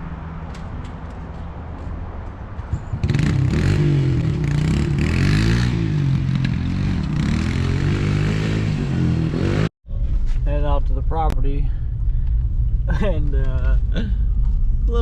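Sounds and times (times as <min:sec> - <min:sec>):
vehicle engine revving: 0:02.8 - 0:09.7.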